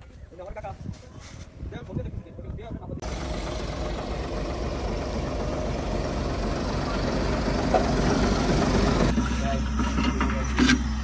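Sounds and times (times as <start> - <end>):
heavy machine engine running: 3.0 - 10.3.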